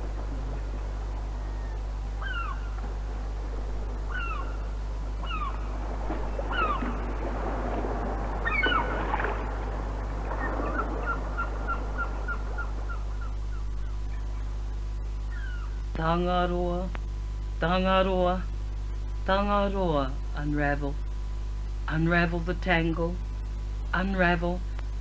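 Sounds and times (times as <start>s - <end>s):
tape hum and hiss: 0.0s - 25.0s
bird calls: 0.2s - 7.3s, 8.3s - 15.8s.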